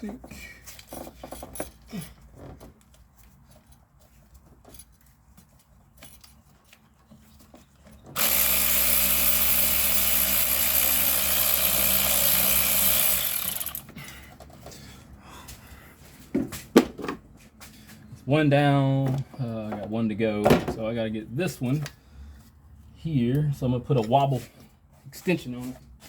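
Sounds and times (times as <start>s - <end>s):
power driver motor running: 8.2s - 13.9s.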